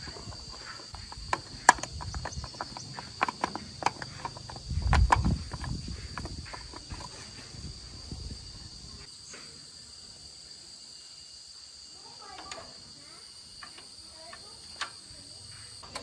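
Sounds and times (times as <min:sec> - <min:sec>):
tools and metal parts clinking: 0:00.0 - 0:07.6
high insect drone: 0:00.0 - 0:16.0.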